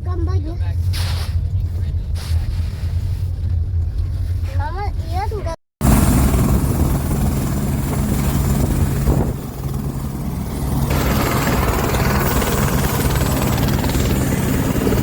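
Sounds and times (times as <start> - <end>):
helicopter running: 5.8 - 15.0.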